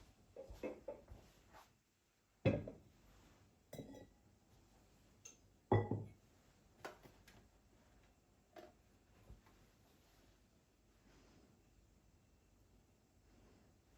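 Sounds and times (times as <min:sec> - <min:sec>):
kitchenware knocks: 0:02.5 - 0:02.8, 0:05.7 - 0:06.1
glassy clink: 0:03.8 - 0:04.1.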